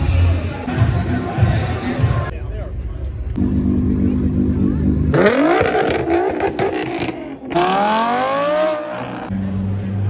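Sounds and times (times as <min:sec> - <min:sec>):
car engine revving: 0:03.4 - 0:10.0.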